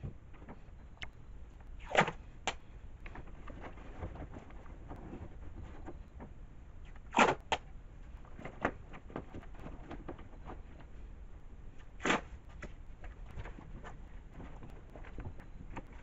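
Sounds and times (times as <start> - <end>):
masking tape ripping off roll: 1.8 - 2.2.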